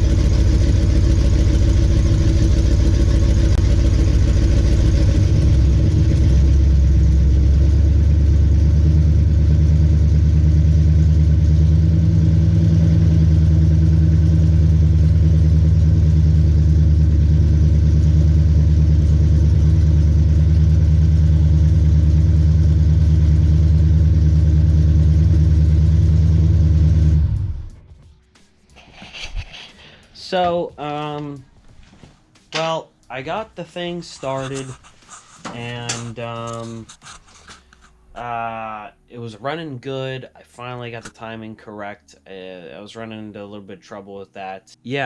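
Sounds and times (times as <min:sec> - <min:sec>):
vee eight engine running: 0:00.0 - 0:27.8.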